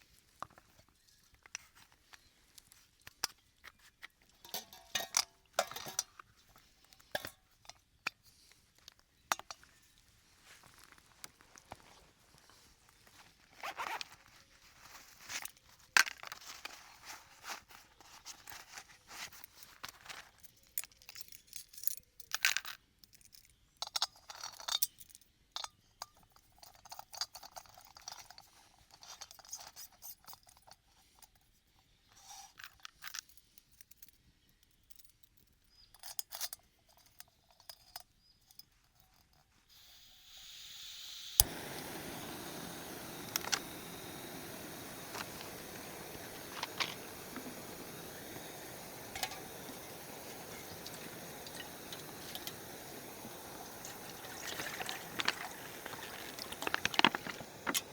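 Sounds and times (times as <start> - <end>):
steady hiss: 39.7 - 57.9
scraping crunching and clicking: 41.4 - 57.9.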